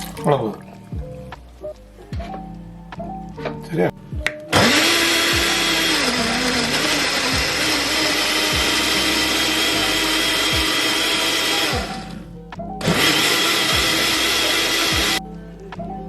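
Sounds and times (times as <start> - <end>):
mixer grinder running: 4.5 - 12.2, 12.8 - 15.2.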